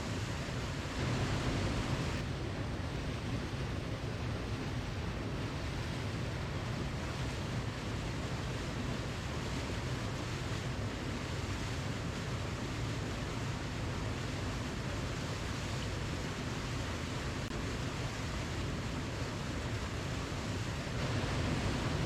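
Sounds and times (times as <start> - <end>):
waterfall rushing: 18.9 - 22.0.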